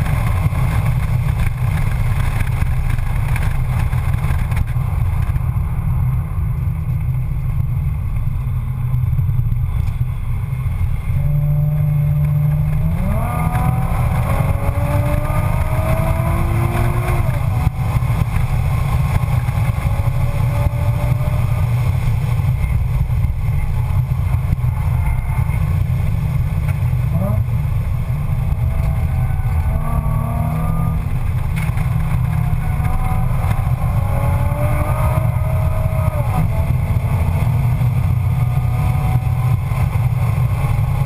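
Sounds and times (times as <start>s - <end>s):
car engine droning at speed: 0.0s - 41.0s.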